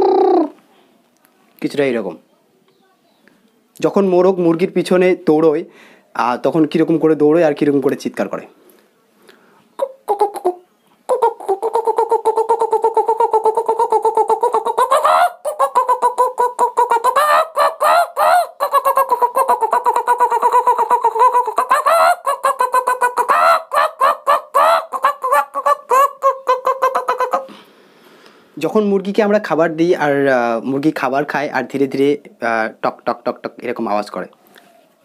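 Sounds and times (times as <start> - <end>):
man imitating chickens: 0.0 - 0.6, 9.8 - 27.6.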